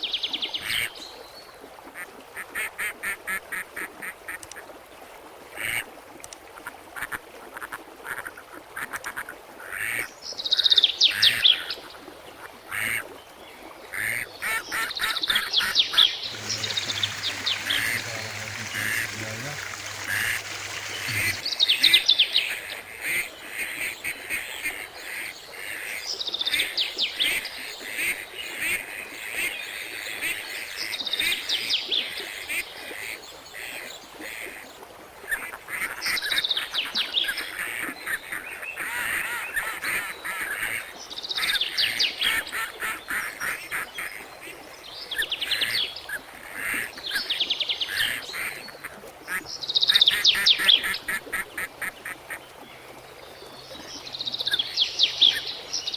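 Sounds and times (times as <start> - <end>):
birds chattering: 16.0 - 21.6.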